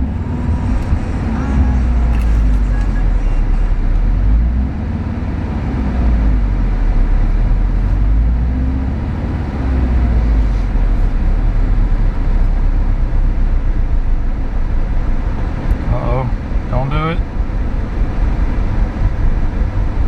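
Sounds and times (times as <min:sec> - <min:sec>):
car engine idling roughly: 0:06.4 - 0:20.0.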